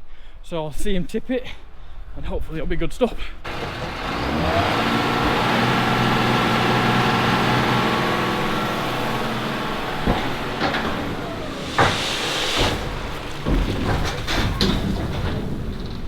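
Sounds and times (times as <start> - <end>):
sharp clunks and knocks: 3.5 - 16.0
tractor engine running: 3.5 - 16.0.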